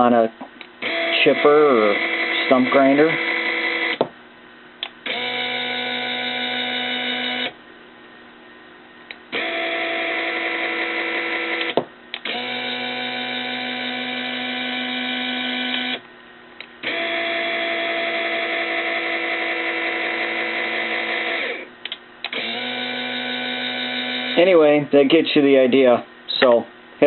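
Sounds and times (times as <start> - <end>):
actuator motor whining: 5.0 - 7.6, 9.3 - 16.0, 16.8 - 24.5.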